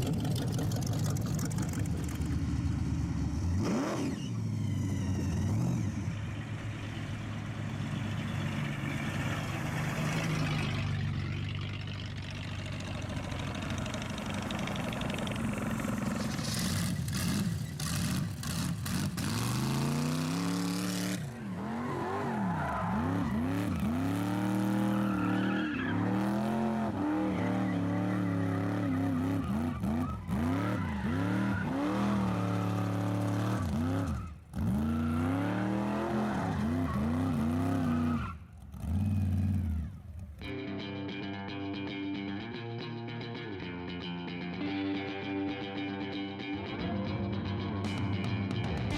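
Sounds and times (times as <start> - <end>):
car engine revving hard: 16.5 - 25.3
tyres screeching: 21.2 - 38.4.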